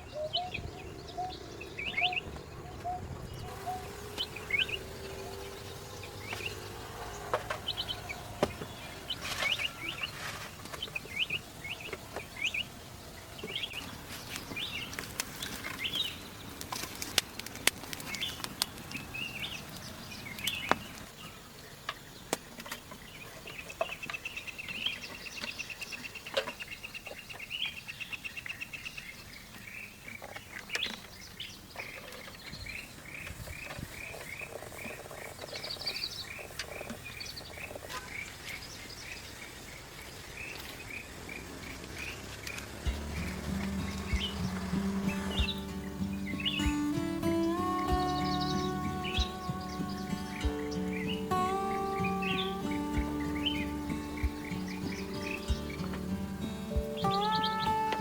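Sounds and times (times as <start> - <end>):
birds chirping: 0.0 - 58.0
bird rapid trill: 3.5 - 10.1.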